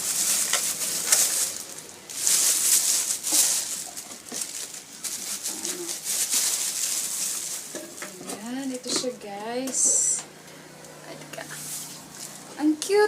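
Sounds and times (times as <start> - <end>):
packaging rustling and crinkling: 0.0 - 9.1, 11.6 - 12.5.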